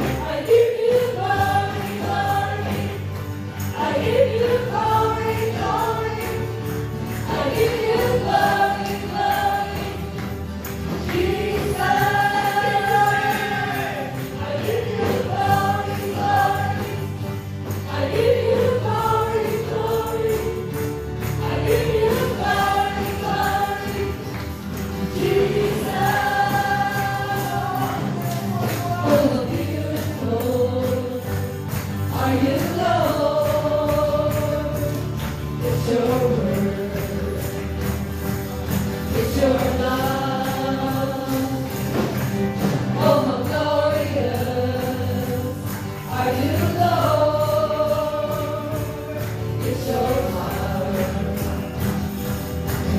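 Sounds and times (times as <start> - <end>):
band accompaniment: 0.0 - 52.9
voices singing slow melody: 0.0 - 52.9.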